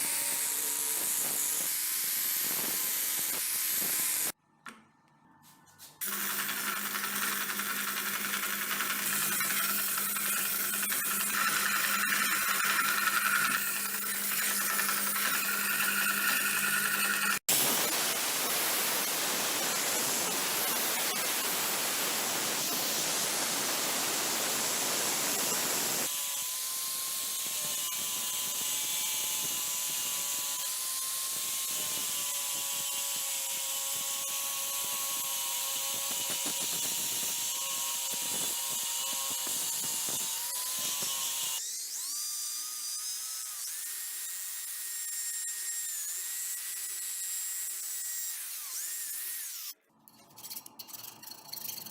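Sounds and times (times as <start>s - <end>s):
power tool grinding metal: 0.0s - 4.4s, 6.0s - 51.9s.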